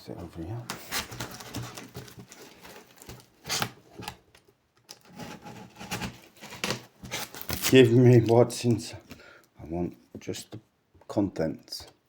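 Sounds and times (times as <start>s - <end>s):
cardboard box scraping: 0.7s - 4.2s, 5.1s - 7.9s.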